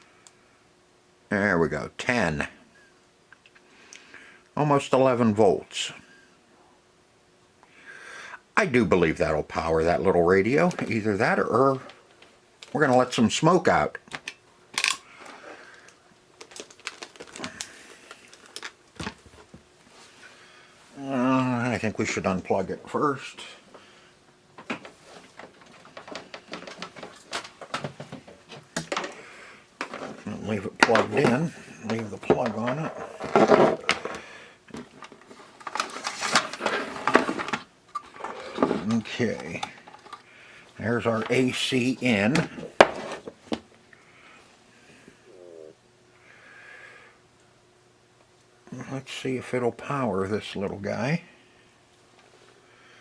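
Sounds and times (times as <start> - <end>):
clicks of small parts and tools: 14.1 - 15.0
power cord and small parts rattling: 24.6 - 40.3.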